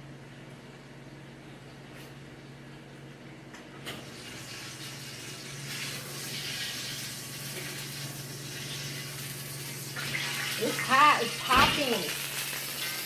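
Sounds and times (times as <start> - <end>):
grease sizzling in a skillet: 4.1 - 13.0.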